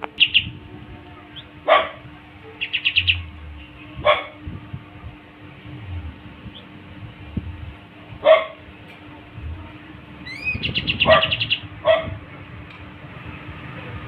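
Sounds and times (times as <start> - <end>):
songbird whistling and trilling: 0.2 - 0.5, 2.6 - 3.3, 10.2 - 11.6
dog barks: 1.7 - 2.0, 4.0 - 4.4, 8.2 - 8.6, 11.0 - 12.2.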